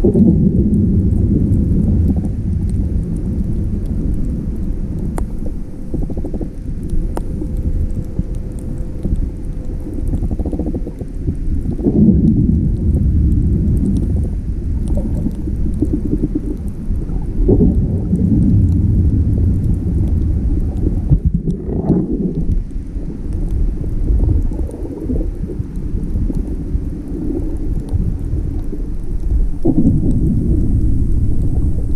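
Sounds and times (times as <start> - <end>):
low rumbling with crackles: 0.0 - 31.9.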